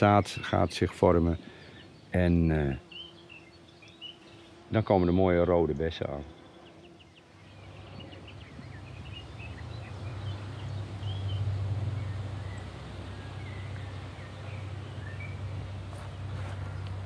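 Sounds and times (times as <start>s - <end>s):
birds chirping and whistling: 0.0s - 4.6s, 6.4s - 17.0s.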